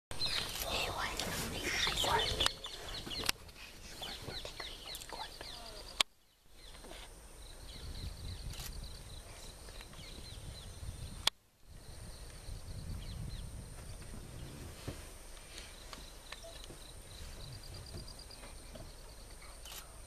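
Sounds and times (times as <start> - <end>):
bird chirps and trill: 0.2 - 3.3.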